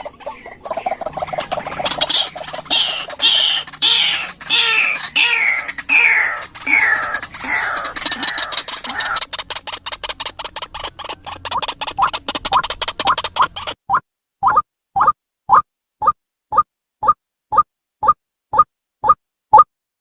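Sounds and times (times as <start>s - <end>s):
bird harsh calls: 0.0s - 13.8s
bird rapid ticking: 0.0s - 19.7s.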